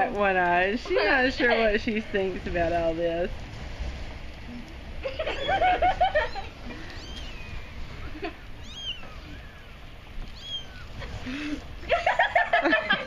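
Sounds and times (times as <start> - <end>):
kittens mewing: 5.4 - 11.8.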